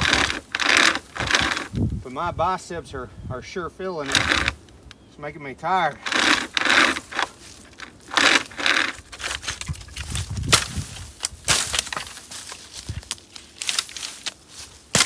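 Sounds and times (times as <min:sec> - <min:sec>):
branch cracking: 0:00.0 - 0:01.9, 0:04.0 - 0:05.0, 0:05.9 - 0:15.0
hand chainsaw rasping through wood: 0:00.0 - 0:01.9, 0:04.0 - 0:04.8, 0:06.0 - 0:10.8.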